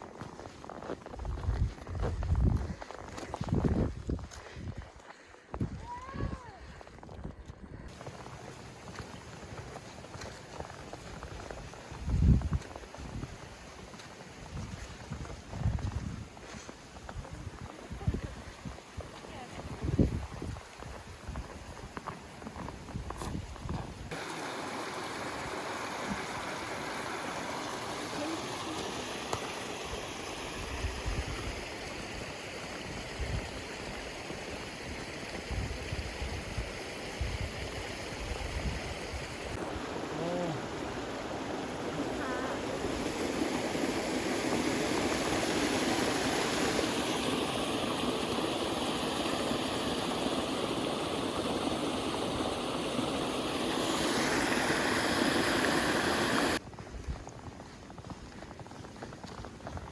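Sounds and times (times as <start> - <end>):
flowing water rushing: 7.9 - 12.0, 24.1 - 56.6.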